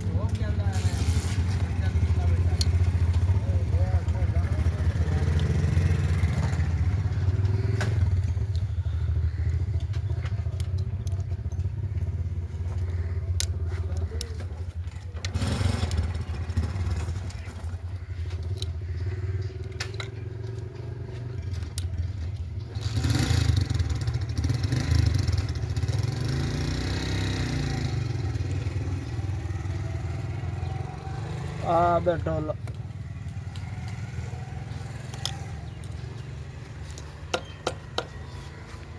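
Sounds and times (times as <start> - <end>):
sharp clicks: 9.4 - 12.2, 12.8 - 14.4, 34.8 - 38.2.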